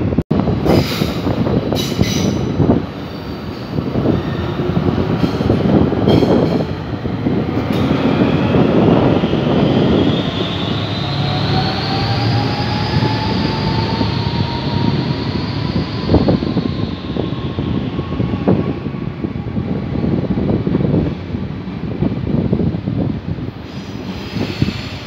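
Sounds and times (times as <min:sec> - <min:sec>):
diesel locomotive rumbling: 0:00.0 - 0:25.0.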